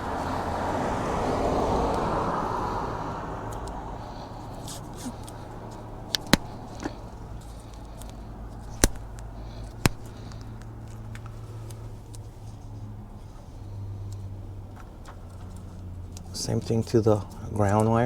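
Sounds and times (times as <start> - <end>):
sharp clicks and taps: 6.2 - 7.0, 8.7 - 10.4.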